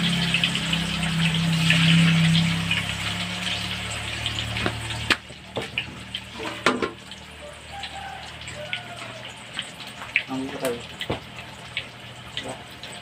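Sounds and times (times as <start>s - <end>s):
low hum: 0.0s - 5.1s
tofu sizzling in oil: 0.0s - 13.0s.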